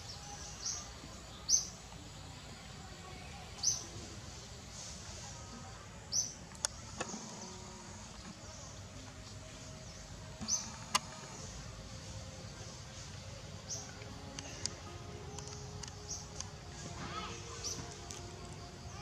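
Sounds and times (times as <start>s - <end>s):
outdoor hiss: 0.0s - 19.0s
bird chirping: 6.1s - 19.0s.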